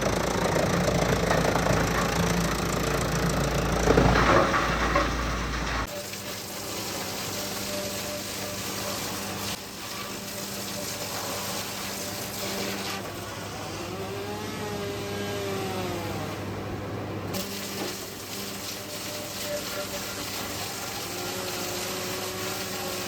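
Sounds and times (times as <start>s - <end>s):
machine engine humming: 0.0s - 17.4s.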